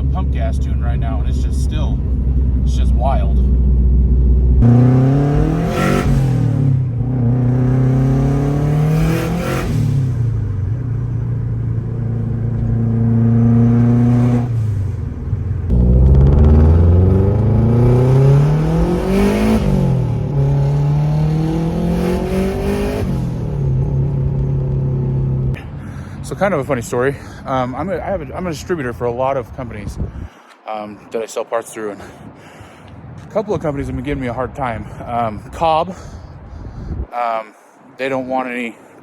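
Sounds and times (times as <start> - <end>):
car exhaust while driven hard: 0.0 - 26.4.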